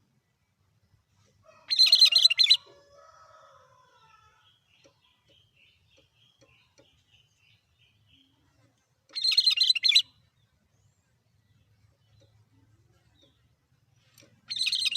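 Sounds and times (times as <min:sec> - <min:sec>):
bird harsh chattering call: 0:09.2 - 0:10.1, 0:14.5 - 0:14.9.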